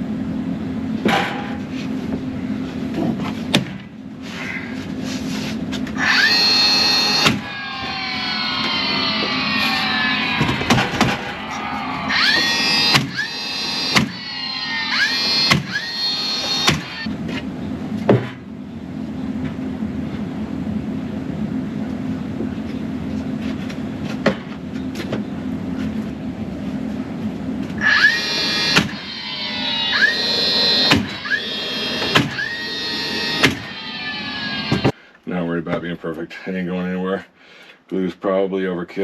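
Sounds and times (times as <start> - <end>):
low hum: 0.0 - 34.9
nail gun whine and crack: 5.9 - 17.1, 27.8 - 35.0.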